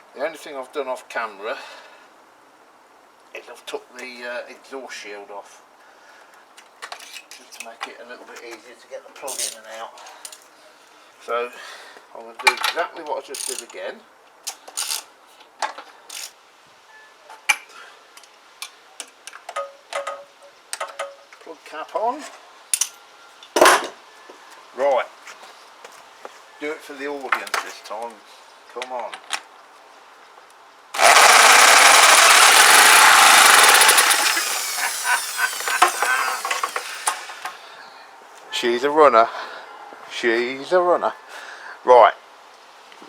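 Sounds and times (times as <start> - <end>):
small petrol engine running: 31.0 - 37.6
tool scraping: 31.0 - 37.6.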